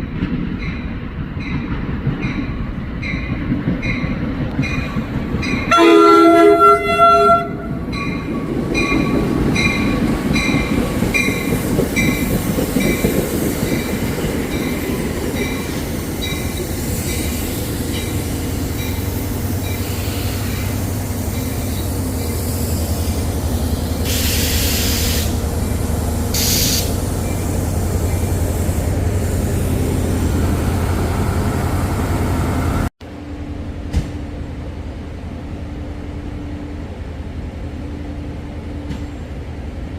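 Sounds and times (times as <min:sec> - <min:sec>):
train rumbling past: 0:00.0 - 0:39.9
train horn chord: 0:05.7 - 0:07.8.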